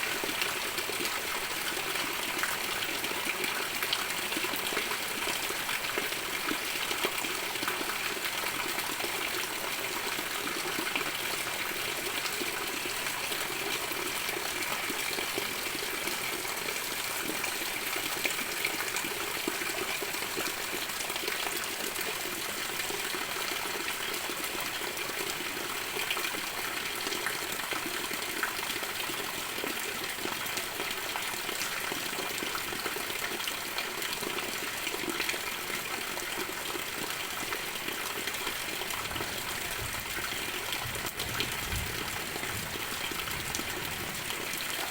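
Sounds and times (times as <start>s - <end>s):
heavy rain falling: 38.9s - 44.9s.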